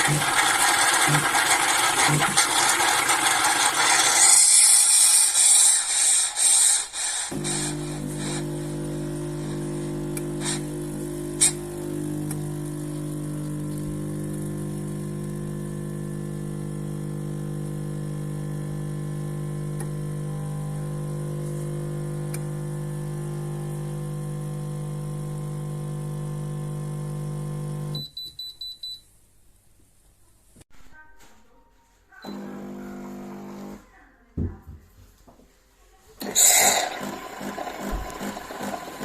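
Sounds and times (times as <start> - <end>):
espresso machine pump humming: 0.0 - 6.0, 7.2 - 28.0, 32.2 - 33.8, 36.2 - 39.0.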